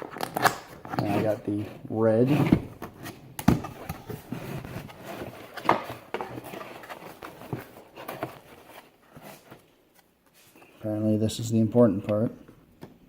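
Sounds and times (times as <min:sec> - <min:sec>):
cardboard box being opened: 0:00.0 - 0:09.6
packaging rustling: 0:02.4 - 0:09.8.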